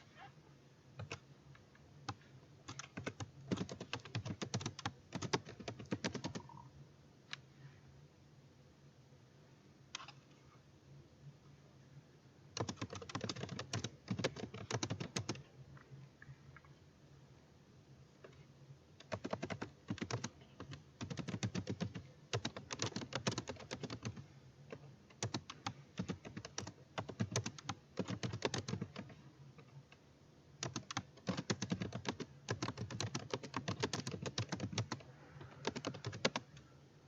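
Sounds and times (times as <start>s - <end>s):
faint low hum: 0.0s - 37.0s
typing on a keyboard: 1.0s - 1.2s, 2.1s - 6.7s, 12.6s - 15.4s, 19.0s - 29.2s, 30.6s - 36.5s.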